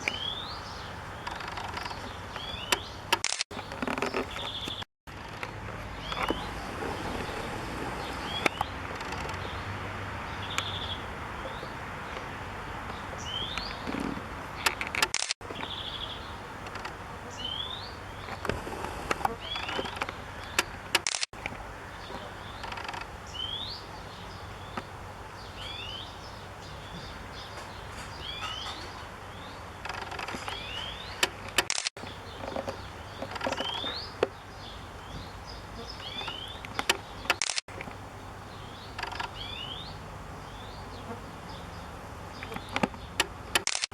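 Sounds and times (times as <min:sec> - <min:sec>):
birds chirping: 0:00.0 - 0:04.9, 0:05.7 - 0:43.8
steady background noise: 0:00.0 - 0:43.9
brief clicks: 0:01.2 - 0:04.8, 0:14.6 - 0:15.4, 0:31.2 - 0:31.9, 0:36.2 - 0:37.9, 0:42.4 - 0:43.9.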